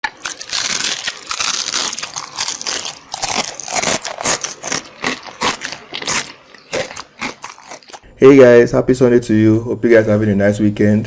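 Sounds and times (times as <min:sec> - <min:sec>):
eating crunches: 0:00.0 - 0:08.0.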